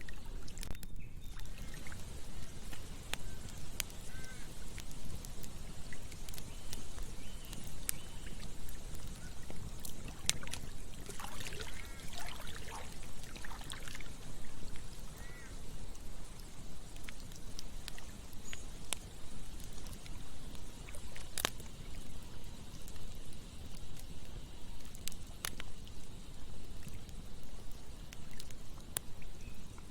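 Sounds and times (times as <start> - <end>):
water gurgling: 0.0 - 0.8, 1.4 - 18.3
campfire crackling and popping: 0.0 - 29.9
flowing water: 0.0 - 29.9.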